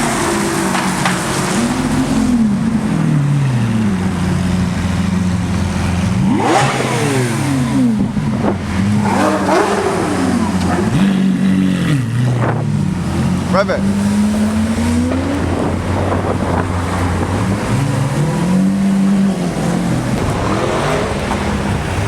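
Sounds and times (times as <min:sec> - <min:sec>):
car engines revving: 0:00.0 - 0:22.0
steady engine drone: 0:00.0 - 0:22.0.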